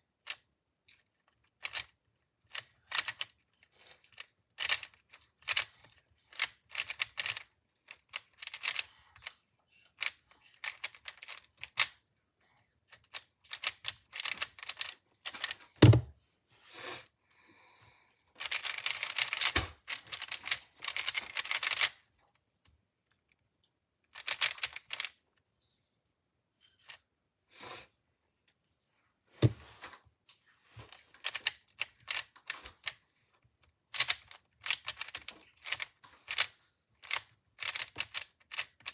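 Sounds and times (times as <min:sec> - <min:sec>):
speed cube layers clicking: 0:01.6 - 0:01.9, 0:02.5 - 0:03.4, 0:04.1 - 0:08.9, 0:10.0 - 0:11.9, 0:13.0 - 0:15.6, 0:18.4 - 0:21.9, 0:24.1 - 0:25.1, 0:31.2 - 0:33.0, 0:33.9 - 0:38.9.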